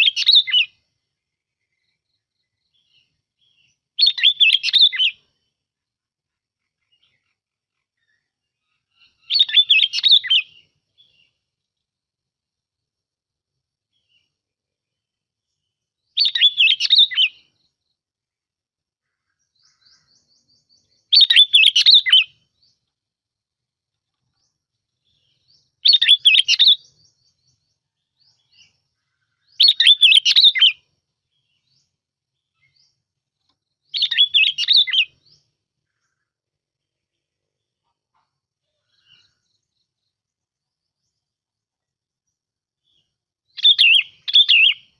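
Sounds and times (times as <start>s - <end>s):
bulbul singing: 0.0s - 5.5s, 6.6s - 11.5s, 15.5s - 17.8s, 19.4s - 22.9s, 24.3s - 36.2s, 42.3s - 44.9s.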